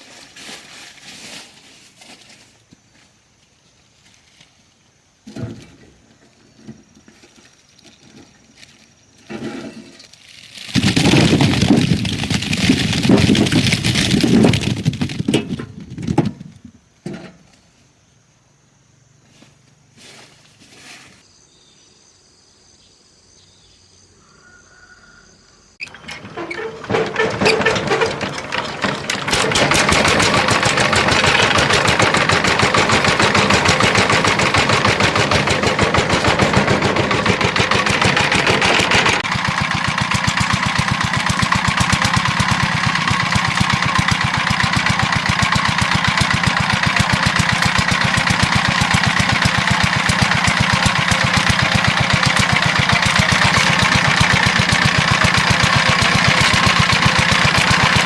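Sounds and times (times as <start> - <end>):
small engine running: 10.1 - 15.2, 25.8 - 58.0.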